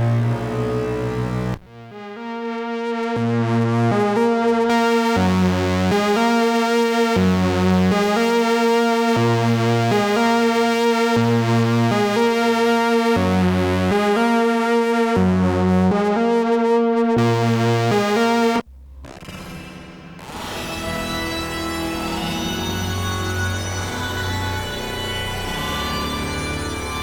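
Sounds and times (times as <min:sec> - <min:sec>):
synthesizer looping pattern: 0:01.6 - 0:20.6
deep synth bass note: 0:17.0 - 0:21.8.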